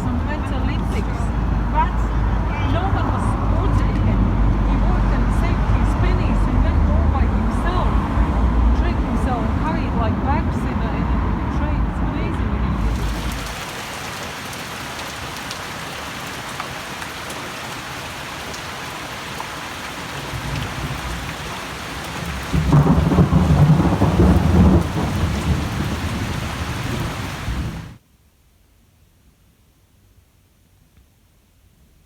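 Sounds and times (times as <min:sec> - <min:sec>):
heavy rain pouring: 0:12.4 - 0:28.0
thunder rolling: 0:12.7 - 0:14.2, 0:20.2 - 0:28.0.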